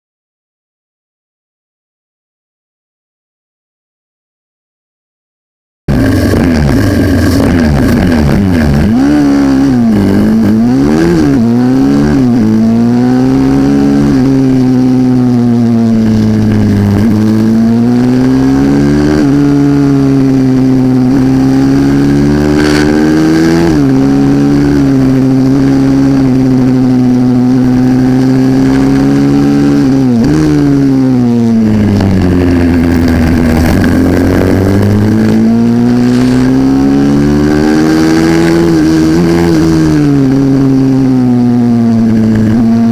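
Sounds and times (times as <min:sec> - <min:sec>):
minibike engine racing: 0:05.9 - 0:42.9.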